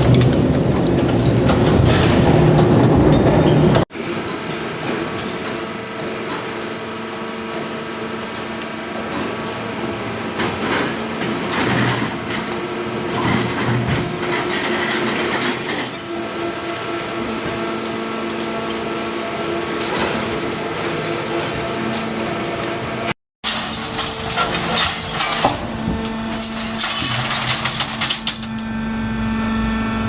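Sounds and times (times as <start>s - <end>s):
grinding and knocking: 0.0s - 3.8s
crushing machine humming: 0.0s - 30.0s.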